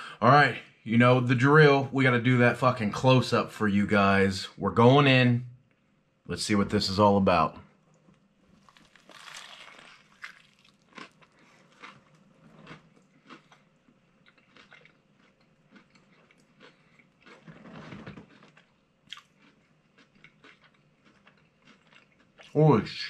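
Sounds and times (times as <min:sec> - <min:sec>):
biting into crunchy food: 0:08.5 - 0:22.6
close-up chewing with crunches: 0:08.5 - 0:22.6.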